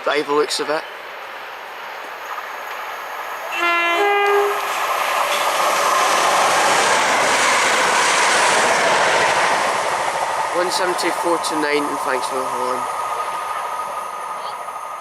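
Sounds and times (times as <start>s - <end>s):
train wheels rushing on rails: 1.2s - 15.0s
two-tone train horn: 3.5s - 4.8s.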